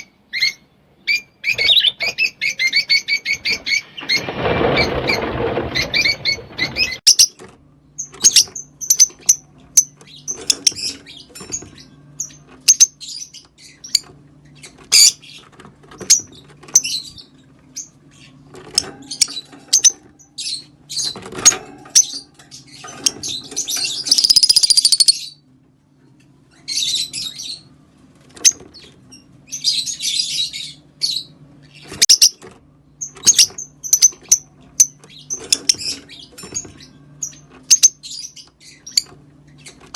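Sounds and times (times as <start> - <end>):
lovebirds chirping: 0.0 - 25.4, 26.5 - 27.8, 28.4 - 39.9
harsh bird chatter: 0.4 - 25.4, 26.6 - 39.9.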